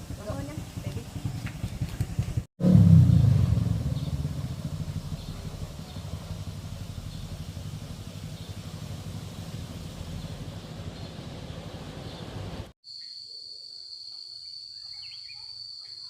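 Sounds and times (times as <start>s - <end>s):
engine running with low pulse: 0.0s - 12.8s.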